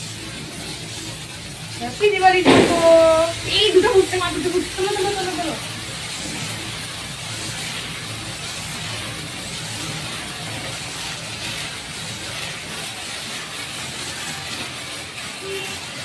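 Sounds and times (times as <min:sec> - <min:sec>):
firework hissing: 0:00.0 - 0:16.0.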